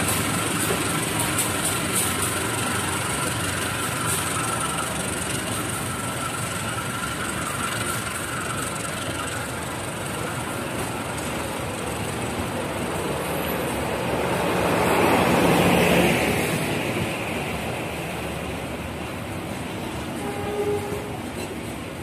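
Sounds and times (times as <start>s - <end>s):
diesel generator low hum: 0.0s - 14.6s
train coaches rumbling past: 0.0s - 22.0s.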